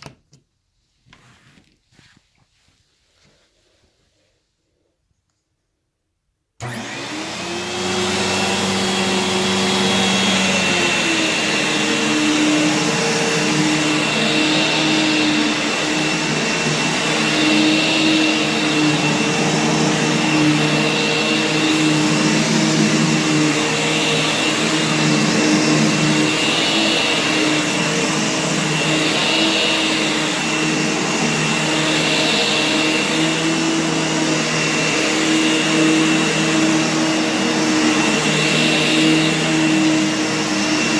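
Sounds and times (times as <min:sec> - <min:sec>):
upright vacuum cleaner running: 0:06.6 - 0:40.9.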